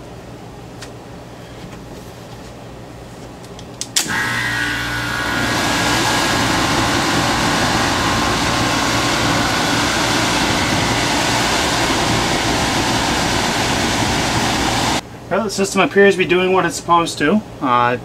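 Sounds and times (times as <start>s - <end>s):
blower switch click: 3.5s - 4.8s
blower air rushing: 4.0s - 15.4s.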